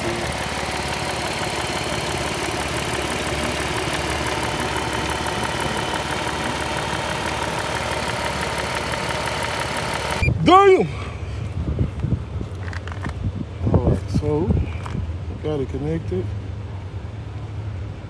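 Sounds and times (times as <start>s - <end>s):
car engine idling: 0.0s - 10.3s.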